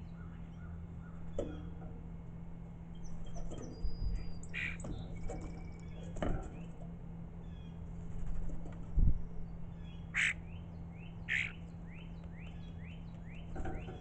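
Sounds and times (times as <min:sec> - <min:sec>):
steady low hum: 0:00.0 - 0:14.0
small birds chirping: 0:02.8 - 0:08.3, 0:09.1 - 0:14.0.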